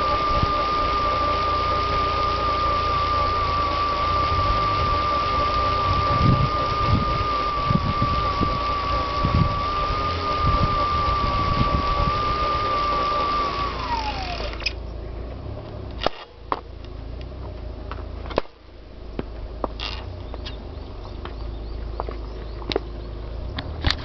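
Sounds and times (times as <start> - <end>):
bicycle trainer roller whine: 0.0 - 14.9, 19.7 - 22.8.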